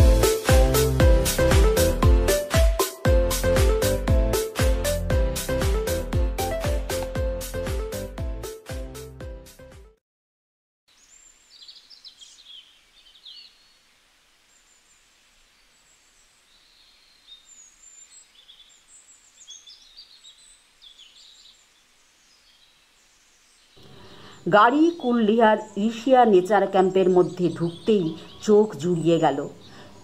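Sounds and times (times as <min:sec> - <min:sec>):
background music: 0:00.0 - 0:10.0
outdoor ambience hiss: 0:10.9 - 0:30.0
birds chirping and trilling: 0:11.0 - 0:13.9, 0:14.5 - 0:30.0.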